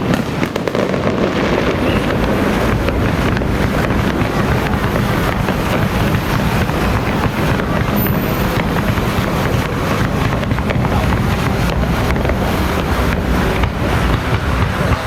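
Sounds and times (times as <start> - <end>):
firecrackers crackling: 0.0 - 15.0.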